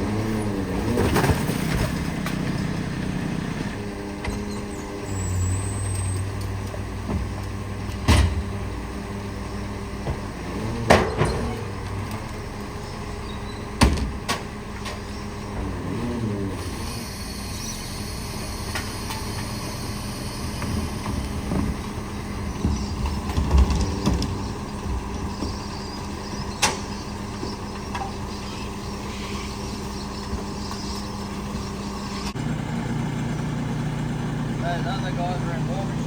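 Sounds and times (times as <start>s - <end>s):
garbage truck engine running: 0.0s - 36.0s
knocks and clunks: 5.9s - 8.7s, 9.9s - 12.8s, 13.6s - 16.0s, 20.5s - 28.3s.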